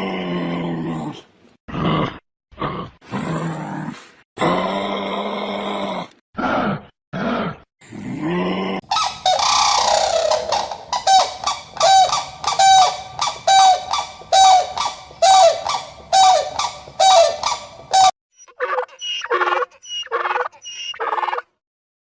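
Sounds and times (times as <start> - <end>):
animal honking call: 8.9 - 18.1.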